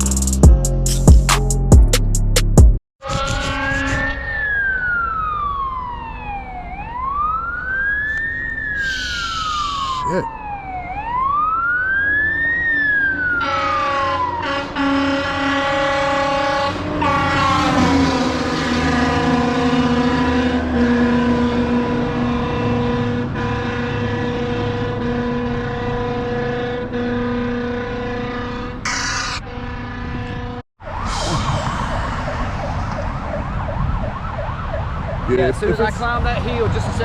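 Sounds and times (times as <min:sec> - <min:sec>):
air horn blasts: 0:03.0 - 0:04.4, 0:13.4 - 0:30.6
siren wailing: 0:03.0 - 0:23.5, 0:28.1 - 0:35.9.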